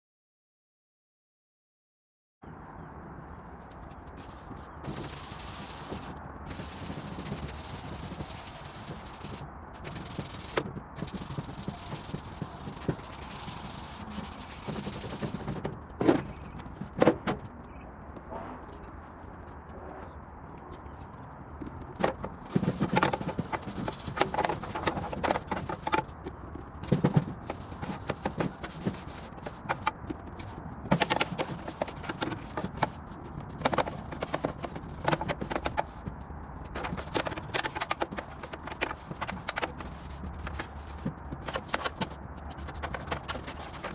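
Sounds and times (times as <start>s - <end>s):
tools and metal parts clattering: 22.0s - 43.9s.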